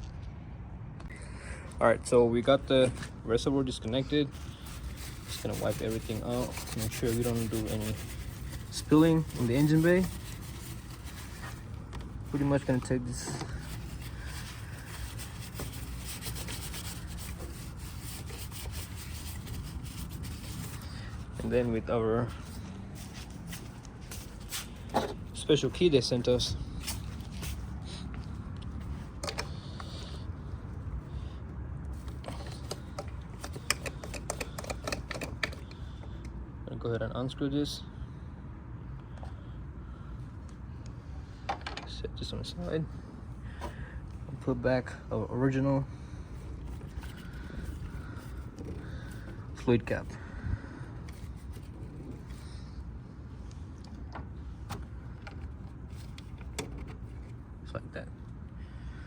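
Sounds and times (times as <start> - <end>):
steady low hum: 0.0 - 36.8.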